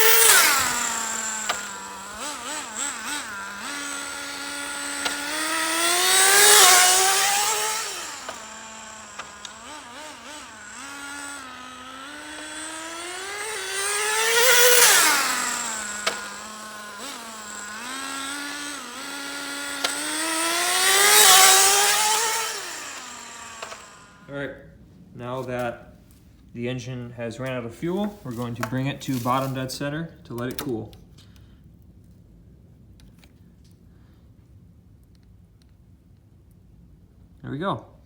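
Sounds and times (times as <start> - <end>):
rc car nitro engine revving: 0.0 - 24.3.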